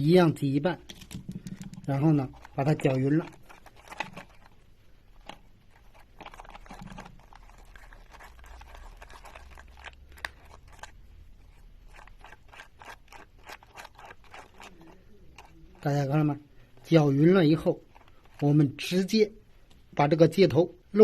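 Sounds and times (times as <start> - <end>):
glue scraping on cardboard: 5.7 - 16.0.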